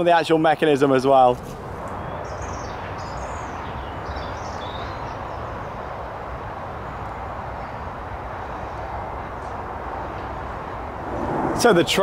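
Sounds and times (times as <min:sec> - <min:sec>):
small birds chirping: 0:01.8 - 0:05.9
low outdoor rumble: 0:10.8 - 0:12.0.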